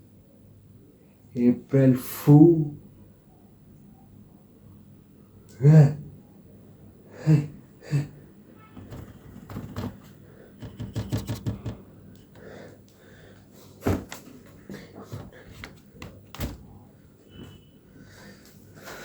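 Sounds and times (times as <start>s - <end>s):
sharp knocks: 8.8s - 11.9s
rapid clicks: 8.8s - 12.4s.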